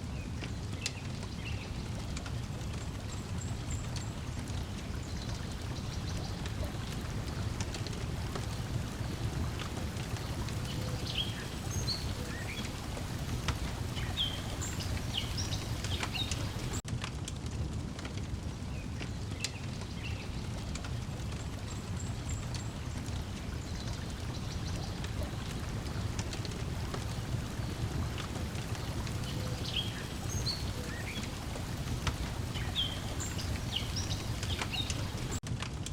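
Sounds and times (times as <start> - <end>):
water lapping at shore: 0.0 - 16.8, 19.8 - 35.4
wood fire crackling: 0.2 - 35.9
bird chirps: 29.0 - 35.4.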